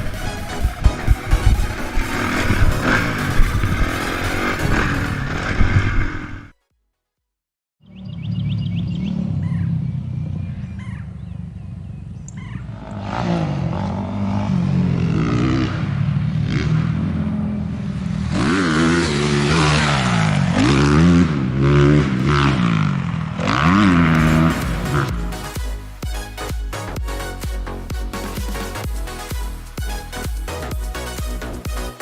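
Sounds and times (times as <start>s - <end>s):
rushing wind noise: 0.0s - 6.5s
dirt bike engine revving: 0.0s - 6.6s, 12.6s - 32.0s.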